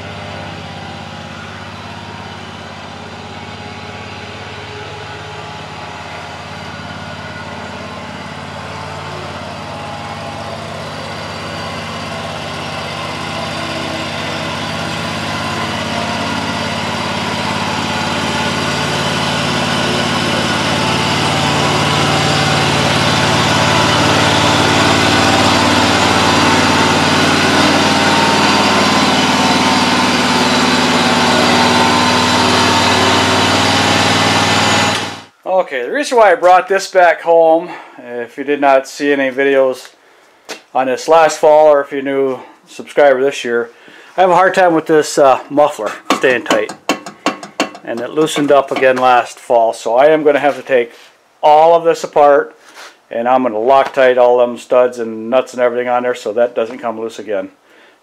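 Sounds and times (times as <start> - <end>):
riding lawn mower engine running: 0.0 - 35.4, 43.7 - 49.3.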